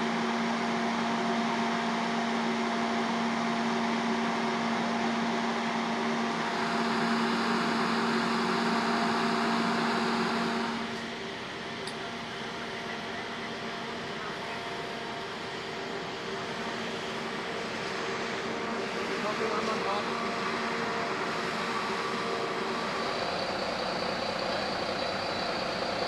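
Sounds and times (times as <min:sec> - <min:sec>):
machine motor humming: 0:15.2 - 0:26.0.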